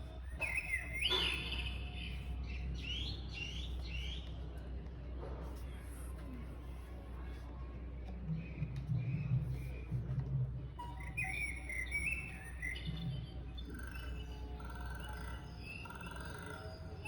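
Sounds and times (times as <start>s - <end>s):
recorded birdsong chirping: 0.0s - 17.0s.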